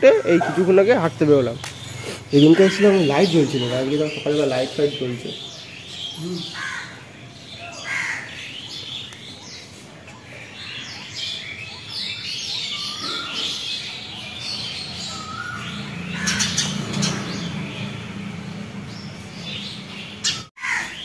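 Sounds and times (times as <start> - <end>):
many birds chirping: 0.0 - 21.0.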